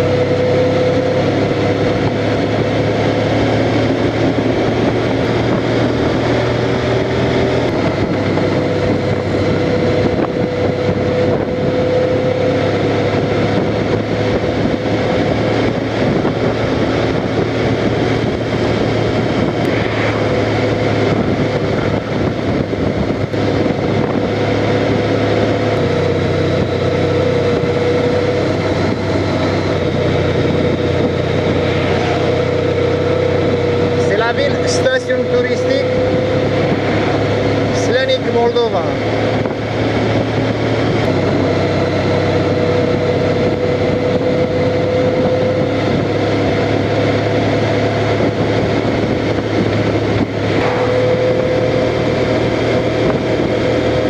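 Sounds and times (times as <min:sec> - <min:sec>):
motorcycle engine running: 0:00.0 - 0:54.0
wind rushing over microphone: 0:00.0 - 0:54.0.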